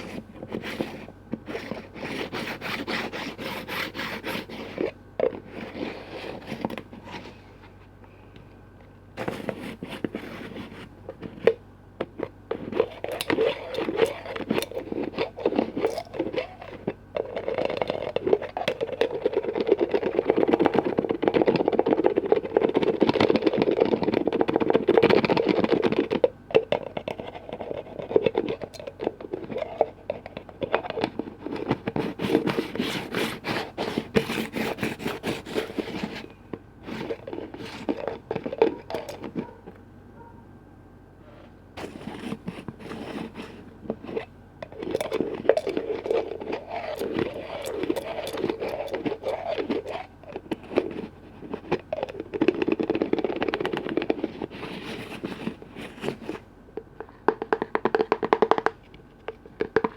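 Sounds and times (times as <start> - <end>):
fast scratching on lids: 0.0 - 7.5, 9.2 - 40.3, 41.8 - 59.9
tapping on container lids: 57.2 - 58.8.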